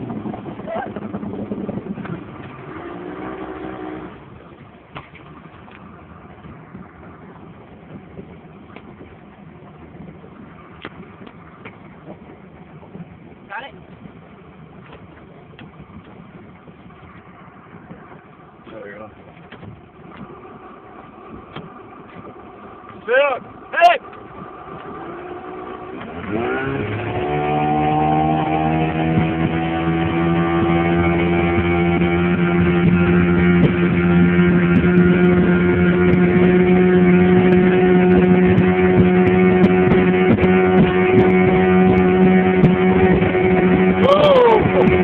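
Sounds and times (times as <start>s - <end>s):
speedboat engine: 0.0s - 45.0s
person shouting: 44.0s - 45.0s.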